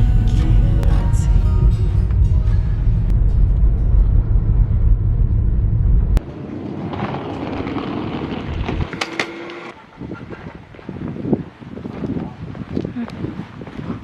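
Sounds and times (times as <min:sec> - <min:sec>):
car driving on road: 0:00.0 - 0:10.2.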